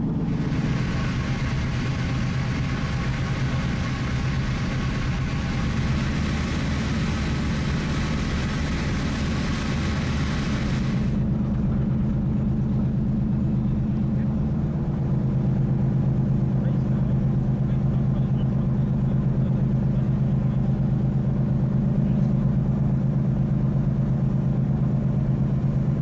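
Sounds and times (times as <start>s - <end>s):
hiss of wind and water: 0.0s - 11.2s
ship engine hum: 0.0s - 26.0s.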